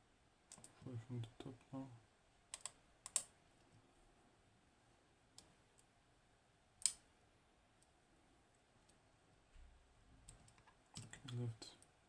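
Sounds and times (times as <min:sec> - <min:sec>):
lock pick metallic clicks: 0:02.5 - 0:03.3, 0:06.8 - 0:07.1.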